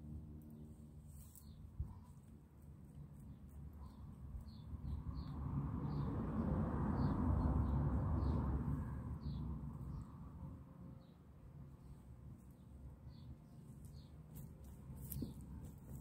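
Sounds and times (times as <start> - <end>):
small bird chirping: 1.1 - 2.3, 3.1 - 6.1.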